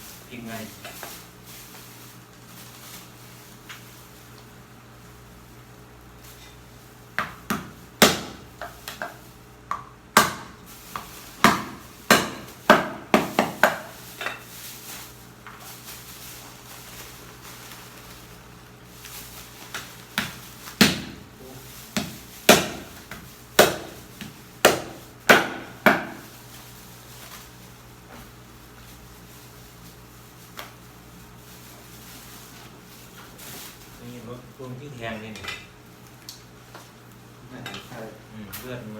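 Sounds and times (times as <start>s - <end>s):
knife chopping meat on board: 7.2s - 14.0s, 19.7s - 21.3s, 21.9s - 26.3s.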